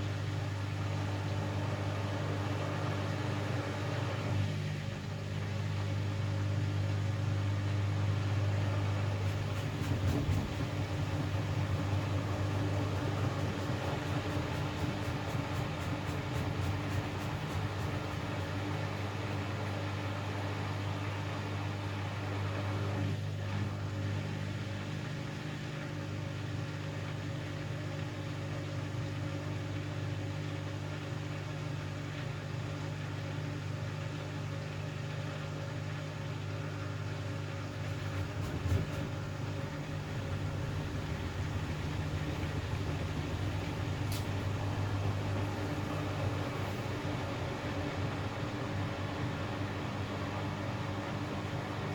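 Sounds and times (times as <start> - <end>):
washing machine motor hum: 0.0 - 51.9
washing machine knock: 9.3 - 18.9, 37.8 - 49.4.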